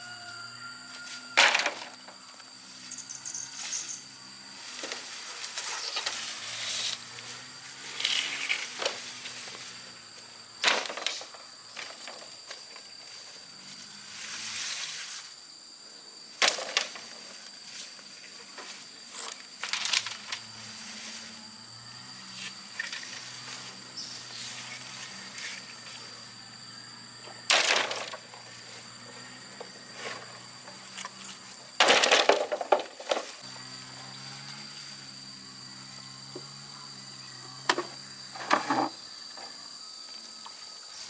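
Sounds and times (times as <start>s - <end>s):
crickets droning: 0.0s - 41.0s
sharp knocks and scrapes: 37.7s - 39.0s.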